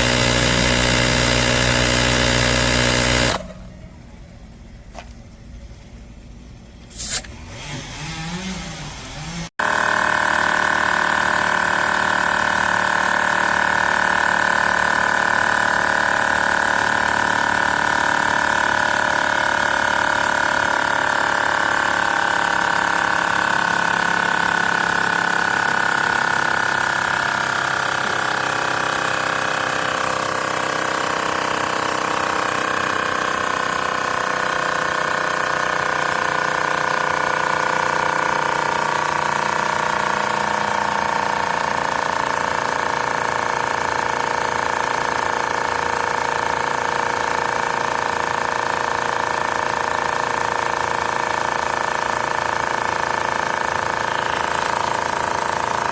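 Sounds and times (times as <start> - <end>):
air compressor buzzing drone: 0.0 - 3.8, 6.8 - 49.7, 50.6 - 55.9.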